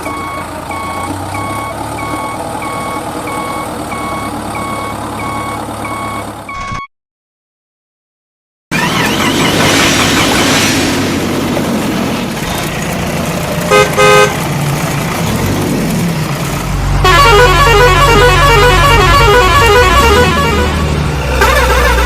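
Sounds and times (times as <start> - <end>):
vehicle engine rumbling: 0.0 - 6.8, 8.7 - 22.0
short horn honks: 17.0 - 22.0.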